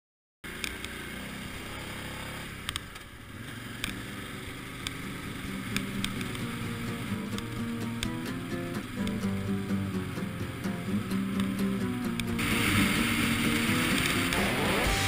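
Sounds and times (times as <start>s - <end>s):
motorcycle engine running: 0.4s - 15.0s
sharp clicks: 0.6s - 1.0s, 2.6s - 3.0s, 3.8s - 4.0s, 5.6s - 9.5s, 10.6s - 12.5s, 13.4s - 14.6s.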